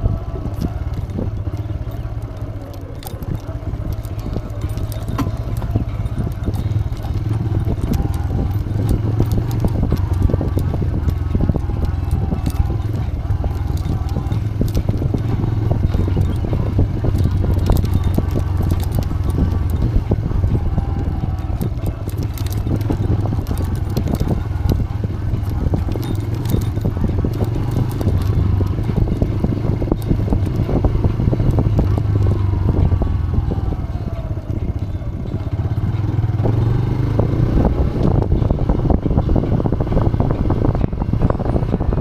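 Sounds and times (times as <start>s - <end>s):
motorcycle engine running: 0.0s - 42.0s
clicks and rattling knocks: 0.5s - 32.4s.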